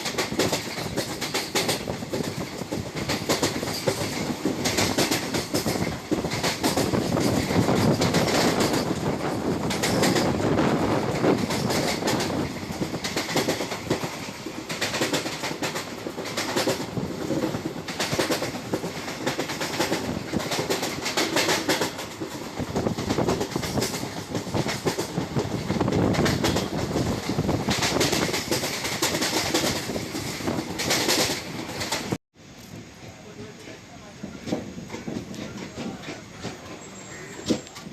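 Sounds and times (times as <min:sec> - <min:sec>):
wheels clacking over rail joints: 0:00.0 - 0:32.2, 0:34.2 - 0:37.9
train rumbling on track: 0:00.0 - 0:37.9.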